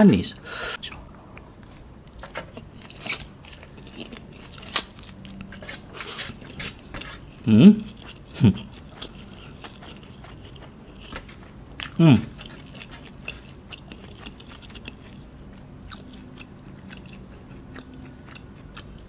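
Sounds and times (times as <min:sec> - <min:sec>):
person chewing noodles: 0:00.8 - 0:19.0
man humming: 0:12.0 - 0:12.4.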